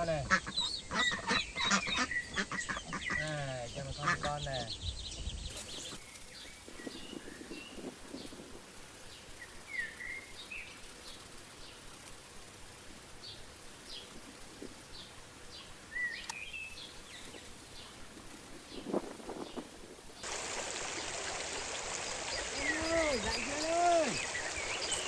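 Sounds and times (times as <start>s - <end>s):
outdoor background noise: 0.0s - 25.0s
small birds chirping: 0.4s - 25.0s
sharp click: 16.0s - 17.3s.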